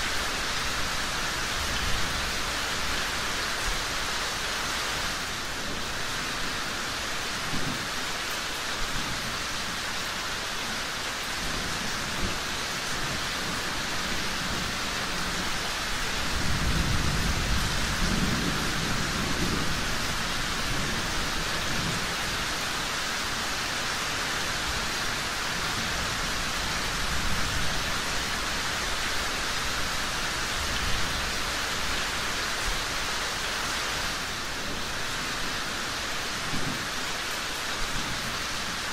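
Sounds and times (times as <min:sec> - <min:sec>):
steady rain falling: 0:00.0 - 0:38.9
low rumble of thunder: 0:11.4 - 0:23.0.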